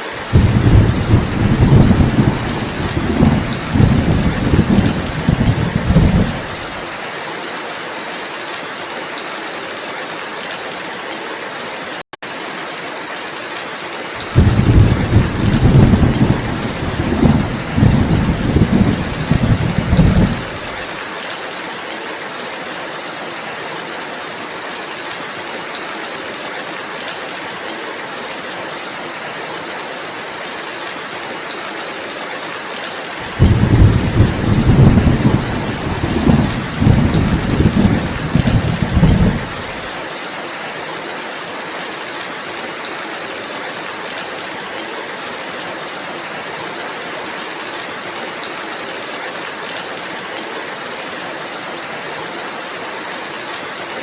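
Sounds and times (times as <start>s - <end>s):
steady rainfall: 0.0s - 54.0s
rolling thunder: 0.3s - 6.7s, 14.3s - 20.7s, 33.2s - 39.8s.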